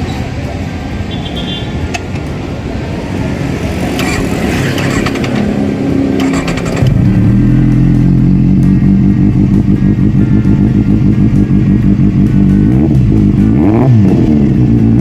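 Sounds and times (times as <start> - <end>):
motorcycle engine revving: 3.4 - 15.0.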